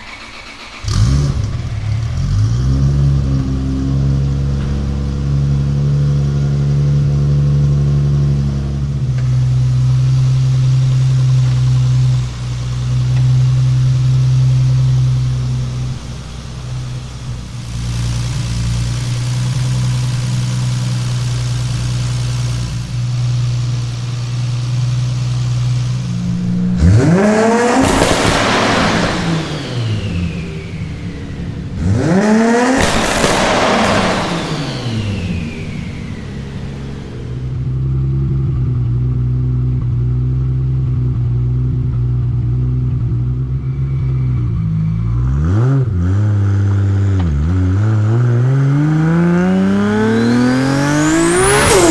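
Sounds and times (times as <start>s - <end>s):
car engine revving: 0.0s - 51.9s
turbo whine: 0.9s - 38.4s, 48.9s - 51.9s.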